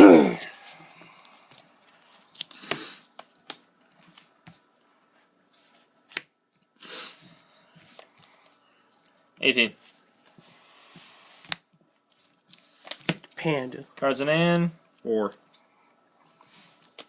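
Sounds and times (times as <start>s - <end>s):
cards rustling: 0.6s - 4.6s.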